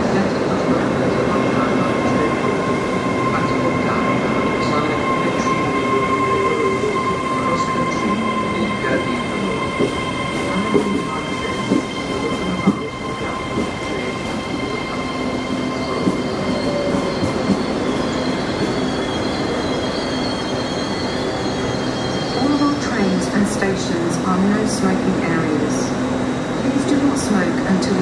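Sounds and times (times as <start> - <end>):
train rumbling: 0.0 - 28.0
train wheel squeal: 0.3 - 24.6.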